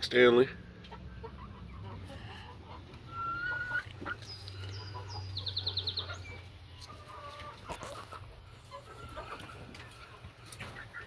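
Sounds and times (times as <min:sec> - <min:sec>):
young chickens clucking: 0:00.0 - 0:11.0.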